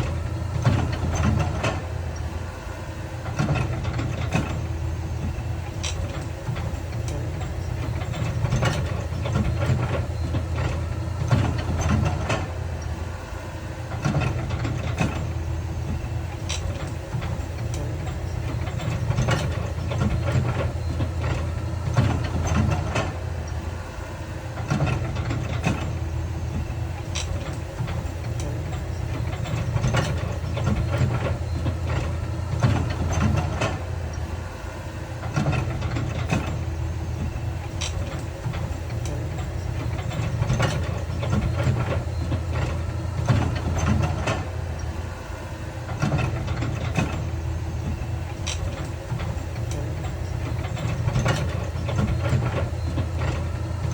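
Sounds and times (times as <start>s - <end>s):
diesel earthmoving machinery engine: 0.0s - 53.9s.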